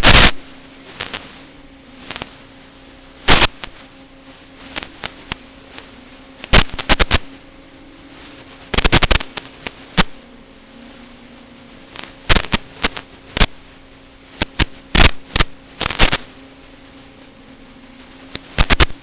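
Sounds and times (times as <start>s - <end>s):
sharp clicks and crackles: 0.0s - 1.4s, 2.0s - 2.4s, 3.3s - 3.9s, 4.7s - 7.3s, 8.4s - 10.2s, 11.9s - 13.6s, 14.3s - 16.4s, 18.0s - 19.0s
buzzing motor hum: 0.0s - 19.0s.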